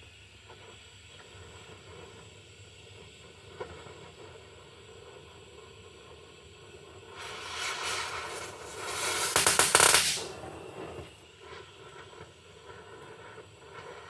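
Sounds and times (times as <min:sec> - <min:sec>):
faint steady hiss: 0:04.2 - 0:14.0.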